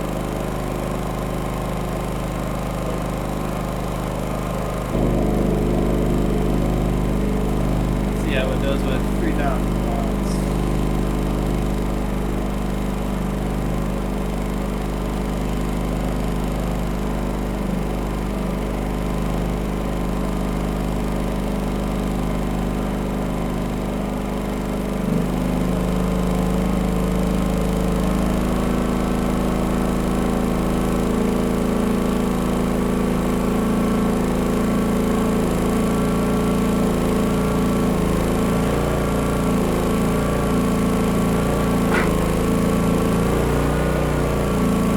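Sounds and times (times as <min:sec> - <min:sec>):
generator engine running: 0:00.0 - 0:44.9
small knock: 0:41.8 - 0:42.3.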